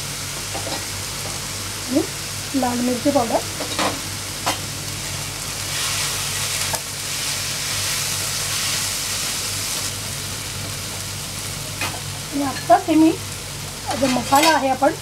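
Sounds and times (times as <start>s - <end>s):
food sizzling in hot oil: 0.0s - 15.0s
steady low hum: 0.0s - 15.0s.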